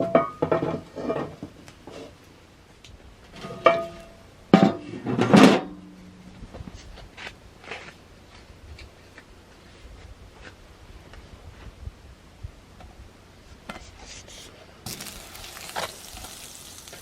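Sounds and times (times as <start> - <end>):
metal cookware clanking: 3.4 - 5.8.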